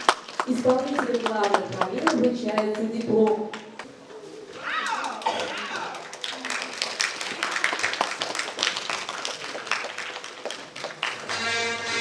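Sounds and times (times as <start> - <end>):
audience clapping: 0.0 - 3.9, 4.8 - 12.0
music with sustained notes: 11.3 - 12.0.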